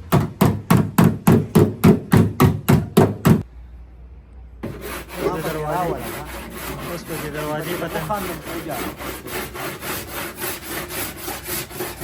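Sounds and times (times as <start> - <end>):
rasping rubbing on bodywork: 4.6 - 12.0.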